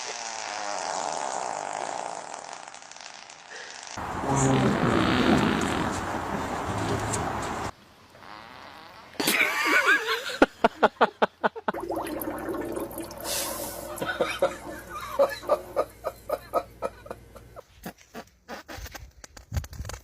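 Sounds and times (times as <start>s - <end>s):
people laughing: 13.9s - 17.6s.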